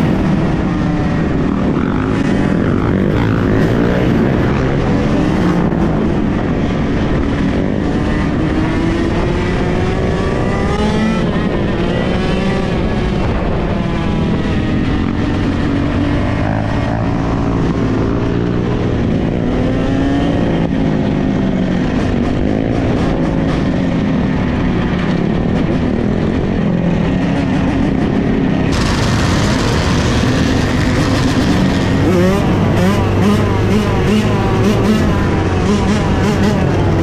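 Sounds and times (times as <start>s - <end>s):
dirt bike engines revving: 27.6s - 37.0s.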